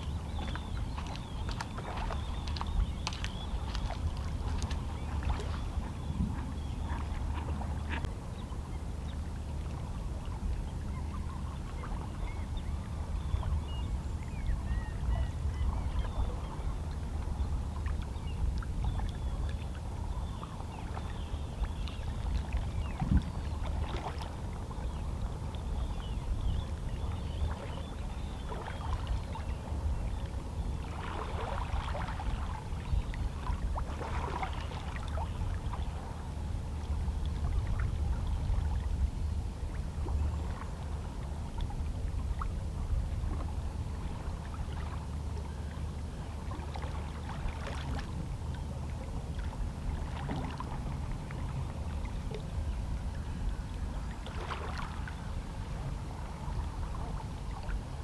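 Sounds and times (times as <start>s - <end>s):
waves lapping against rocks: 0.0s - 5.9s, 54.1s - 58.0s.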